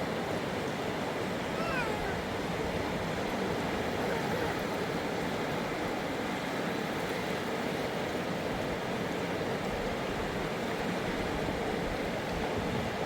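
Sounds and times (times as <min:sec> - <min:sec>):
river rushing over rocks: 0:00.9 - 0:07.6.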